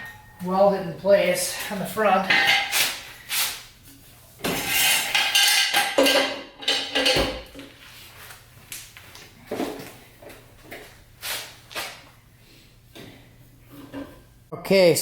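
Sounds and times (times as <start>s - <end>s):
steel parts clattering and scraping: 4.5s - 7.2s.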